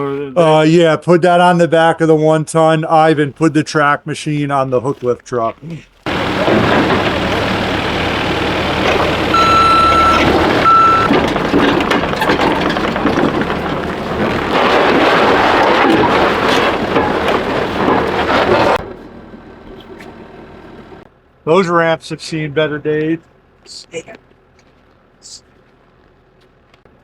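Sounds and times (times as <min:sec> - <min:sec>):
tracked machine engine running: 0:06.0 - 0:21.1
backup alarm beeping: 0:07.2 - 0:11.2.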